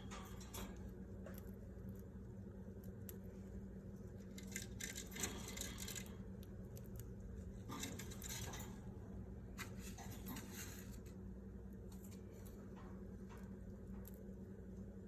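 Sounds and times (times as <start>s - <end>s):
low steady hum: 0.0s - 15.0s
budgies clicking and scratching: 4.1s - 8.8s.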